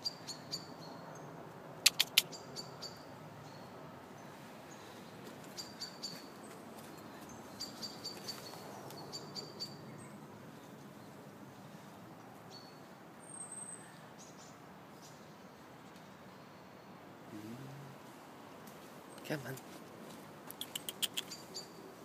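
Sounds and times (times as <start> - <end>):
small bird chirping: 0.0 - 3.7, 5.5 - 6.3, 7.0 - 11.2, 20.5 - 22.0
background hiss: 13.8 - 22.0.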